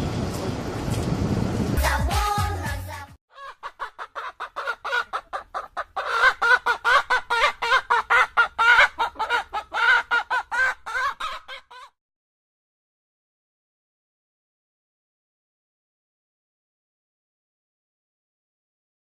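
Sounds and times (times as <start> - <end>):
chicken clucking rapidly: 3.3 - 12.0.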